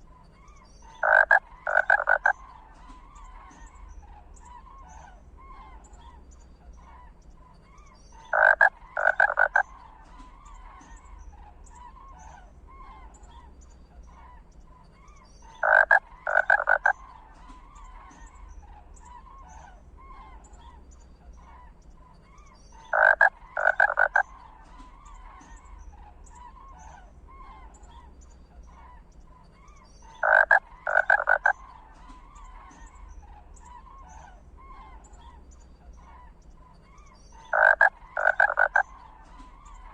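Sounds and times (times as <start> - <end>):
frog chorus: 0.0 - 39.9
loud double frog croak: 1.0 - 2.4, 8.3 - 9.7, 15.6 - 17.0, 22.9 - 24.3, 30.2 - 31.6, 37.4 - 39.0.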